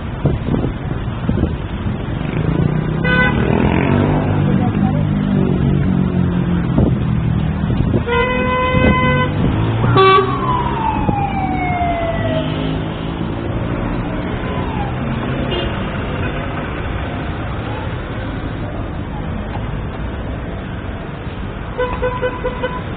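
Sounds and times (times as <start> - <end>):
street traffic: 0.0 - 22.9
vehicle horn: 3.0 - 3.6, 8.1 - 10.4, 21.8 - 22.9.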